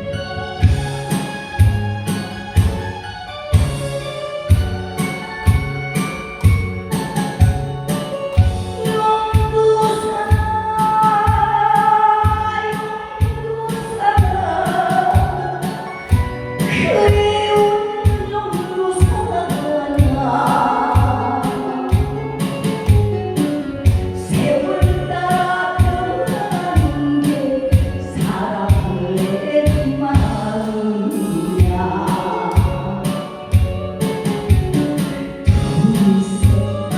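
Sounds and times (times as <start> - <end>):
loud musical accompaniment: 0.0 - 36.9
person singing: 8.0 - 34.2, 35.5 - 36.9.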